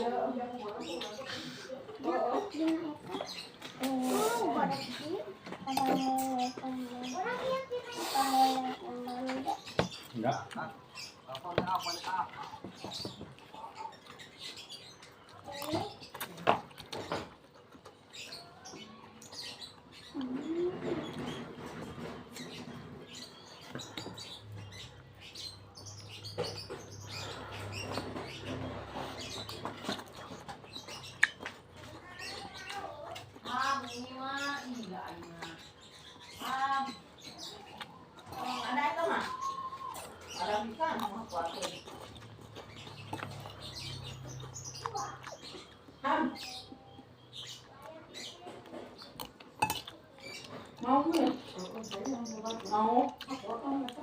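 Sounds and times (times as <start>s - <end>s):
chewing and wet mouth sounds: 0.0s - 20.4s, 22.3s - 54.0s
wet chewing and lip smacks: 29.5s - 33.9s, 37.6s - 38.4s, 40.9s - 45.9s, 49.0s - 54.0s.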